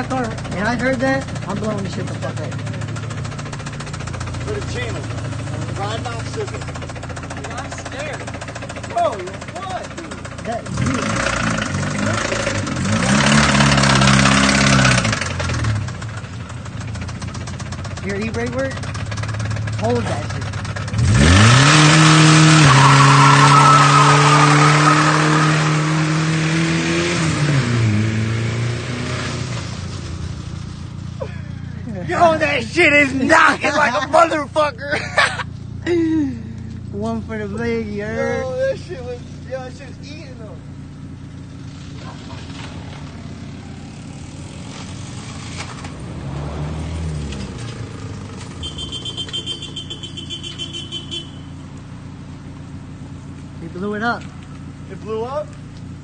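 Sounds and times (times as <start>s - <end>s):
car engine revving with rod knock: 0.0s - 31.2s, 40.6s - 51.2s
tyres squealing: 20.4s - 26.4s, 47.5s - 51.7s.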